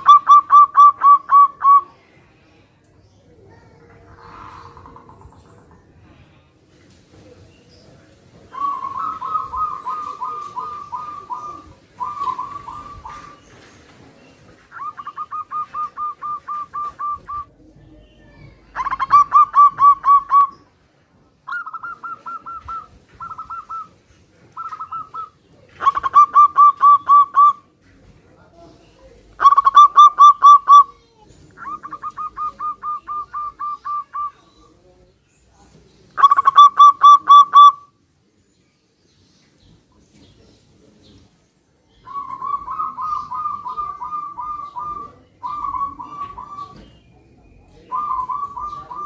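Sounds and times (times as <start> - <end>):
doves cooing: 0.0 - 2.0, 3.4 - 6.0, 8.4 - 20.7, 21.4 - 27.7, 29.1 - 34.8, 36.2 - 37.9, 42.0 - 49.0.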